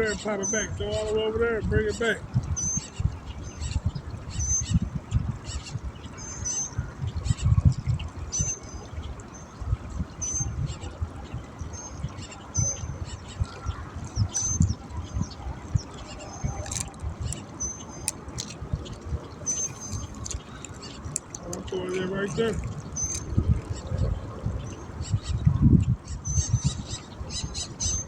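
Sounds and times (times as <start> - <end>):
wind buffeting microphone: 0.0 - 28.0
birds whistling: 11.7 - 24.0
bird chirps: 11.8 - 23.9.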